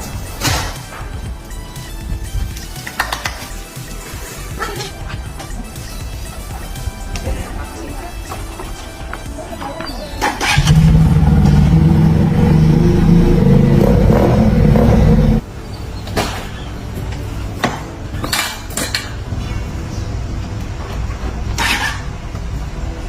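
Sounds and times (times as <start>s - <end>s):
motorcycle engine running: 10.4s - 15.4s.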